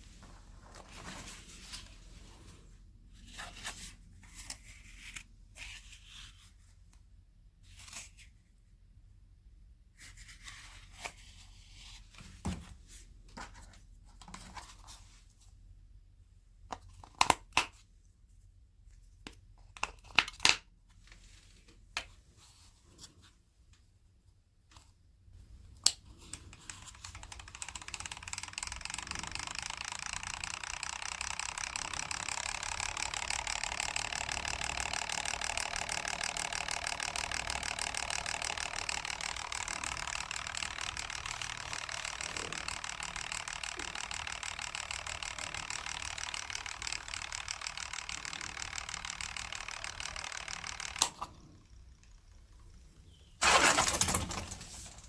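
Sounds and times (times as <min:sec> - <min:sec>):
parts clicking and snapping: 0:16.7 - 0:17.8
small electric motor whirring: 0:26.3 - 0:54.1.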